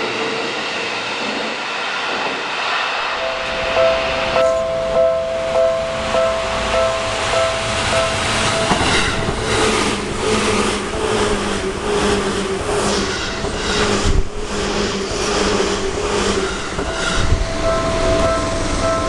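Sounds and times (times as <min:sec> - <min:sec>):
two-tone crossing warning bell: 0:03.1 - 0:11.8, 0:16.4 - 0:19.0
train wheels clattering over rail joints: 0:05.5 - 0:19.0.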